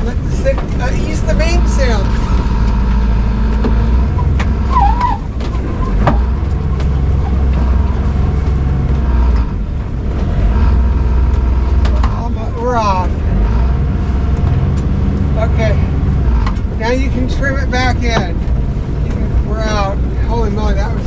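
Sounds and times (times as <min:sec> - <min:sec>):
wind on microphone: 0:00.0 - 0:12.1
boat engine drone: 0:00.0 - 0:21.0.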